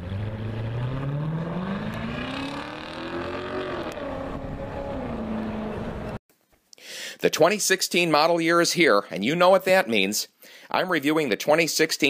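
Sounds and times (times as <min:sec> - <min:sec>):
car engine accelerating hard: 0:00.0 - 0:06.2.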